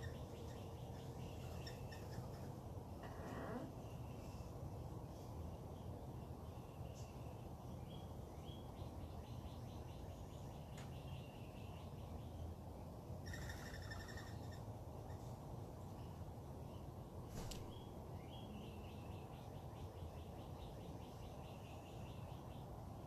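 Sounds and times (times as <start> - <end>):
wild birds calling: 0.0 - 4.5, 13.2 - 15.4.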